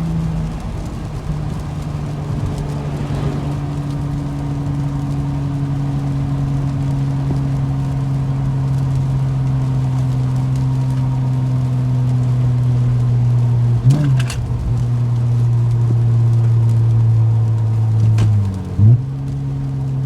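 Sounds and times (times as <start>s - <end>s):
car exhaust droning: 0.0s - 20.0s.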